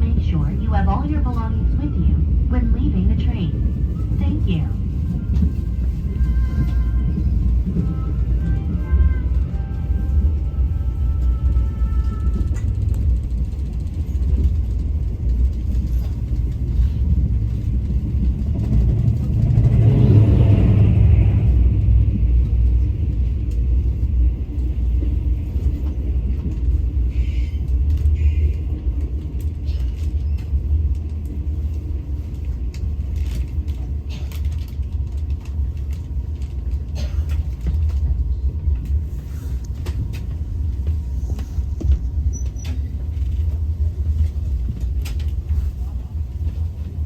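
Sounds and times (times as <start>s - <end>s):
train rumbling on track: 0.0s - 47.0s
faint clicks and creaks: 25.6s - 47.0s.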